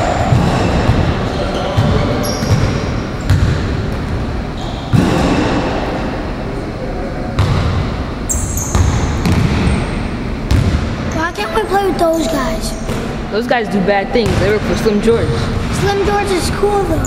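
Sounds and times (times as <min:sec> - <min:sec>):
basketball bouncing on hard court: 0:00.2 - 0:04.2, 0:07.4 - 0:07.9, 0:08.6 - 0:09.8, 0:10.5 - 0:10.8, 0:14.2 - 0:14.8.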